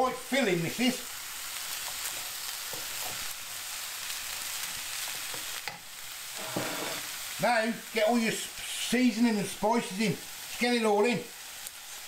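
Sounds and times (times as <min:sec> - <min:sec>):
meat and vegetables sizzling in pan: 0:00.0 - 0:12.0
wooden spoon scraping a pan: 0:06.3 - 0:07.2.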